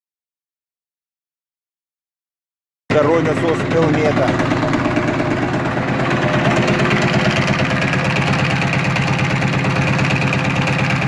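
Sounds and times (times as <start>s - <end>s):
vacuum pump pulsing: 2.9s - 11.0s.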